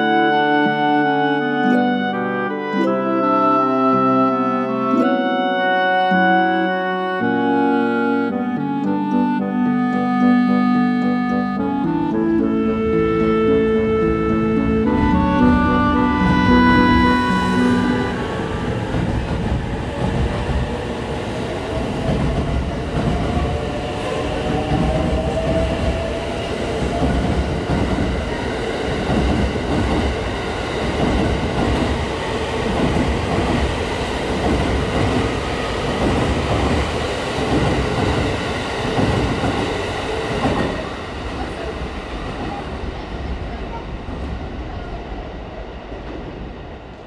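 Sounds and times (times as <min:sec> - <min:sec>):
train wheels clacking: 0:14.8 - 0:41.7.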